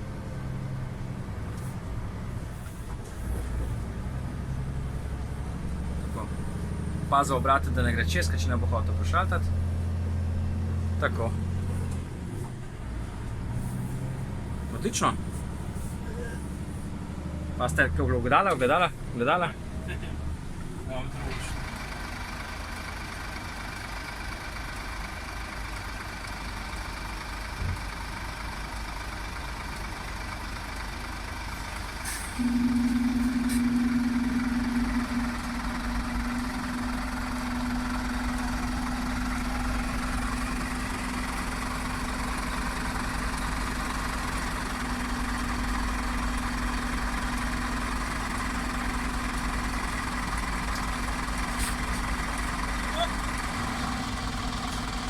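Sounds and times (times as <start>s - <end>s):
truck diesel engine running: 0.0s - 55.0s
steady low drone: 32.4s - 38.8s.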